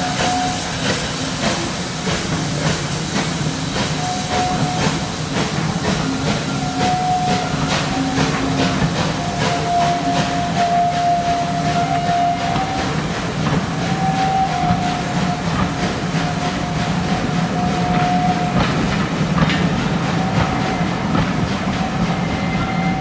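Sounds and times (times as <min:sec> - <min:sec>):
train rumble: 0:00.0 - 0:23.0
train whine: 0:00.0 - 0:23.0.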